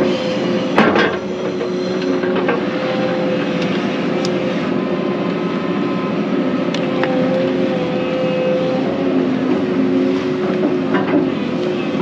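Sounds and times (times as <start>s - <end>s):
excavator engine and hydraulics: 0.0s - 12.0s.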